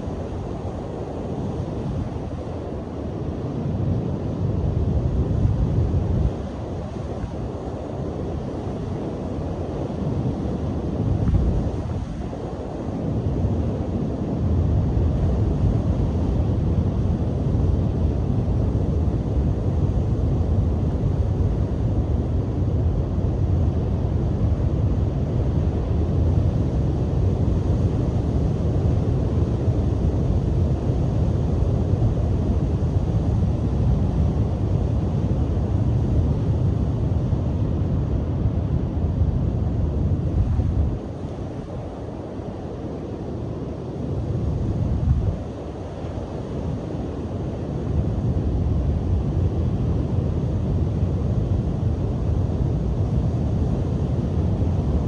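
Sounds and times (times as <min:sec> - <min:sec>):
wind buffeting microphone: 0:10.2 - 0:17.9, 0:44.2 - 0:45.9.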